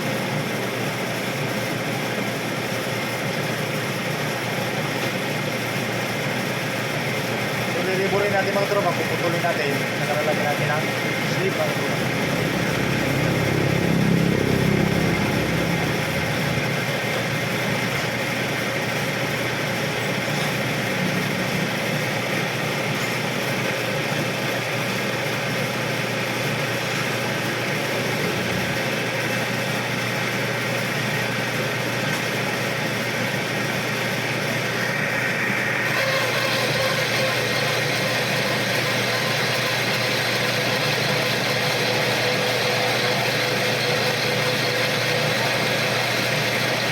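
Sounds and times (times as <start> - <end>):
metal lathe cutting steel: 0.0 - 46.9.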